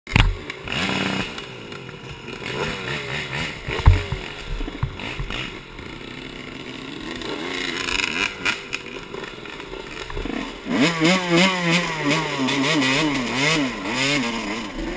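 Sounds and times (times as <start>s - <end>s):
bike knocking and rattling: 0.1s - 10.4s
dirt bike engine revving: 0.1s - 14.9s
loud thump: 3.7s - 5.4s.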